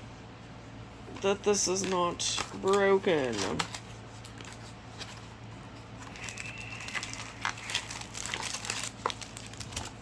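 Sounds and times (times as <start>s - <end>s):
packaging crinkling: 6.0s - 10.0s.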